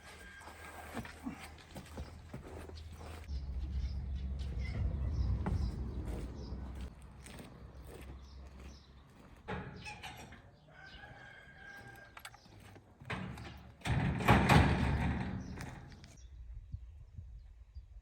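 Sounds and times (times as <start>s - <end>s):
rooster crowing: 0.0s - 1.0s, 10.7s - 12.2s
knocks and rustles: 12.0s - 16.2s.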